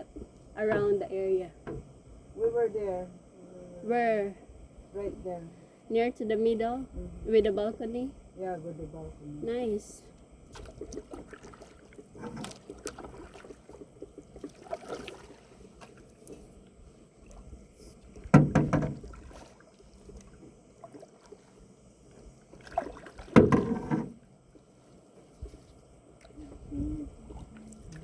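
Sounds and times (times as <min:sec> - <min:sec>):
paddle strokes through water: 0:10.5 - 0:28.0.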